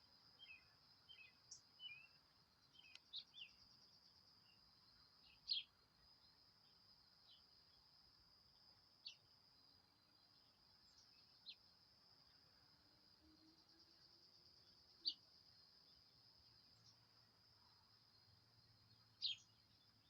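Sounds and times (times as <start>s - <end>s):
insect trill: 0.0s - 20.0s
bird chirps: 0.4s - 3.8s, 5.2s - 5.7s, 9.0s - 9.2s, 15.0s - 15.2s, 19.1s - 20.0s.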